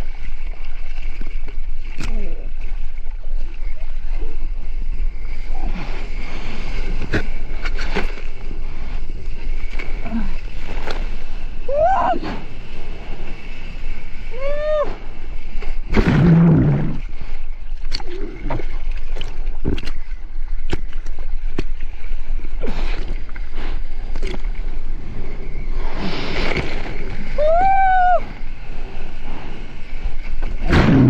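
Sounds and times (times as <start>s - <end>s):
low rumble of wind and water: 0.0s - 31.0s
rush of water: 0.0s - 31.0s
sea water splashing and sloshing: 0.0s - 31.0s.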